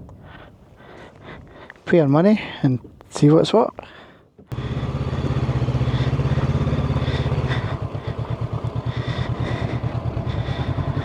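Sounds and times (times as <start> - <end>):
motorcycle engine idling: 4.5 - 11.0.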